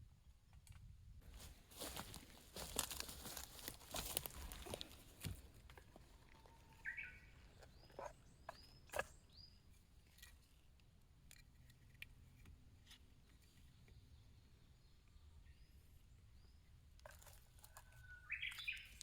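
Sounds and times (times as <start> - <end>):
faint high bird chirps: 6.1 - 9.7, 17.5 - 19.0.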